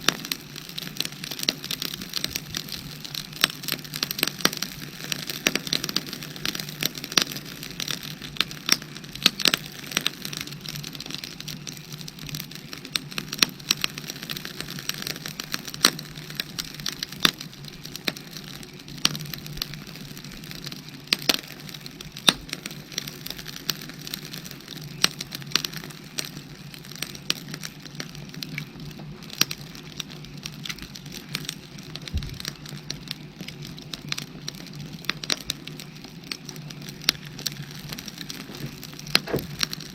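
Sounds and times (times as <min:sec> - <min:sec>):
firewood crackling and popping: 0:00.0 - 0:39.9
steady low hiss: 0:34.3 - 0:39.9.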